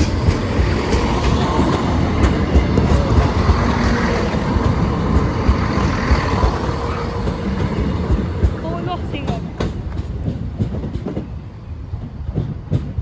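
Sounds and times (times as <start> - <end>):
diesel train engine: 0.0 - 13.0
wheel and rail noise: 0.0 - 13.0.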